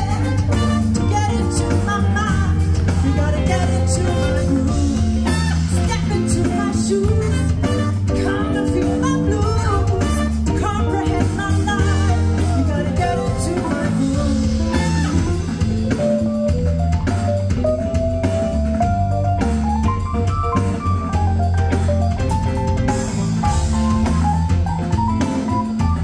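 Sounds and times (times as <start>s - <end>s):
person singing: 0.0s - 16.2s
band playing rock music: 0.0s - 26.0s.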